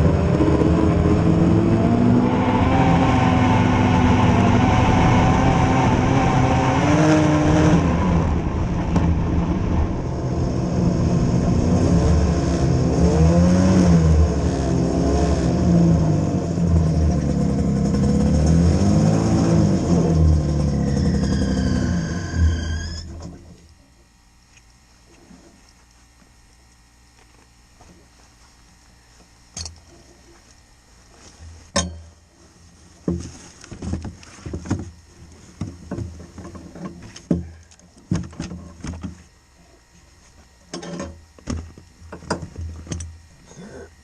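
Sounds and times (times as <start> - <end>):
small vehicle engine revving: 0.0 - 23.4.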